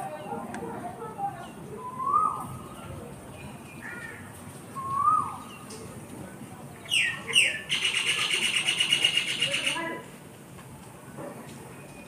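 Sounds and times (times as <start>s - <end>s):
birds whistled calls: 1.4s - 4.0s, 4.7s - 5.7s, 6.9s - 9.8s.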